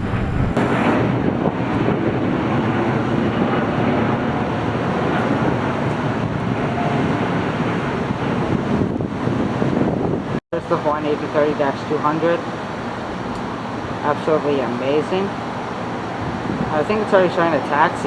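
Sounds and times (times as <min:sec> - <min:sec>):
jet airliner taking off: 0:00.0 - 0:11.2.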